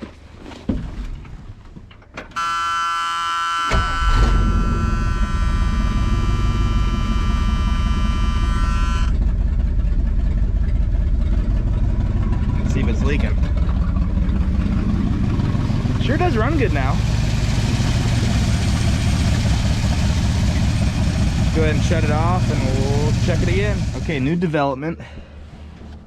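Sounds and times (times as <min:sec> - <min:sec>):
truck engine starting and running: 0:00.0 - 0:26.0
dashboard warning buzzer: 0:02.4 - 0:09.2, 0:17.8 - 0:24.2.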